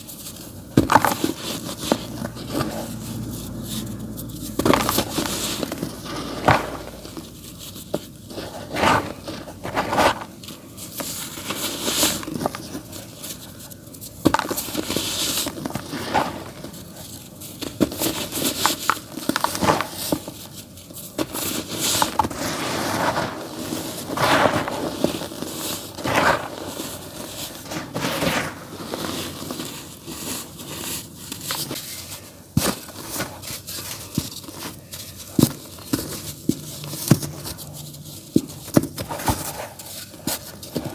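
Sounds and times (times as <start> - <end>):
dry dirt crumbling and crunching: 0.8 - 7.6.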